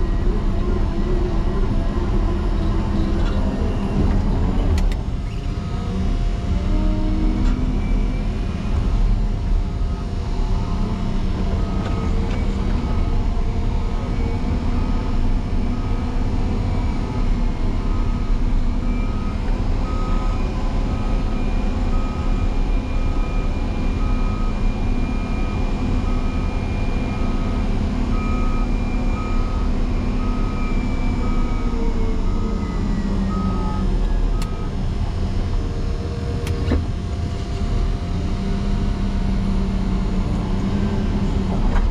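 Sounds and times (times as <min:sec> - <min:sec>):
diesel engine running hard: 0:00.0 - 0:41.9
reversing alarm beeping: 0:11.6 - 0:34.8.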